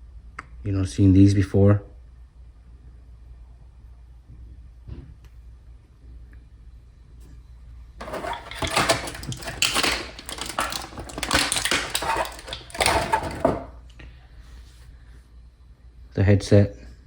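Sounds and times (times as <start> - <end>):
plastic packaging crinkling: 8.0 - 13.7.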